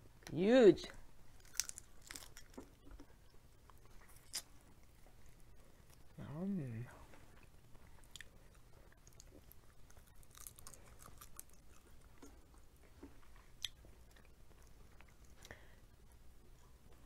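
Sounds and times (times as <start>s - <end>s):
faint chewing: 1.3s - 6.2s, 7.0s - 17.0s
small crackles of crab shell: 1.4s - 3.0s, 10.0s - 11.6s.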